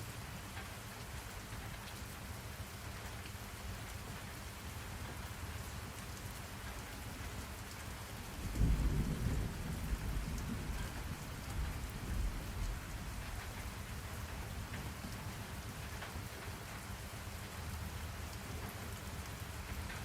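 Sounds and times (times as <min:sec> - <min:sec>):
rain hiss: 0:00.0 - 0:20.0
thunder rumbling: 0:08.3 - 0:13.7.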